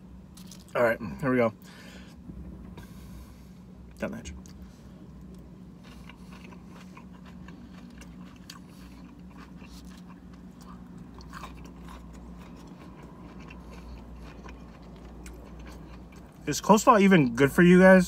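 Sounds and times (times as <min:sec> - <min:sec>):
low hum: 0:00.0 - 0:16.6
man chewing coleslaw: 0:00.3 - 0:00.8, 0:04.4 - 0:17.4.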